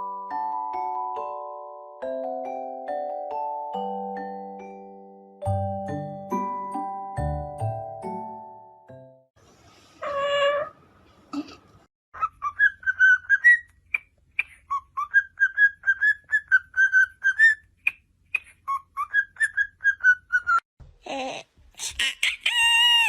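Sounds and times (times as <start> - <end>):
parrot whistling: 10.0 - 10.7, 12.2 - 13.7, 14.4 - 17.6.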